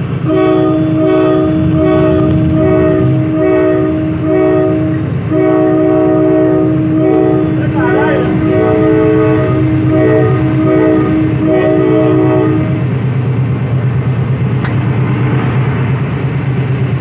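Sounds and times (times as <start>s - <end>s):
trains rumbling on rails: 0.0s - 17.0s
train horn blasts: 0.2s - 13.0s.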